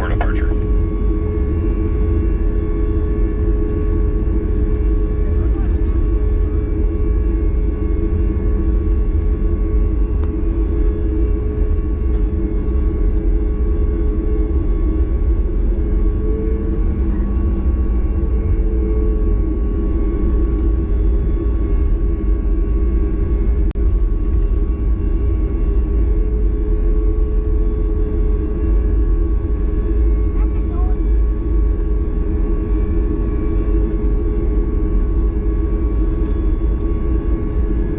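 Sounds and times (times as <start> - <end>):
steady hums at one pitch: 0.0 - 1.0
airplane cabin drone: 0.0 - 37.9.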